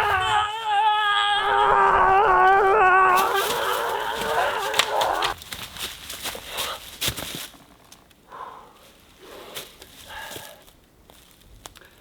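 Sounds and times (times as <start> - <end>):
rustling and crackling in brush: 3.1 - 8.2, 8.8 - 12.0.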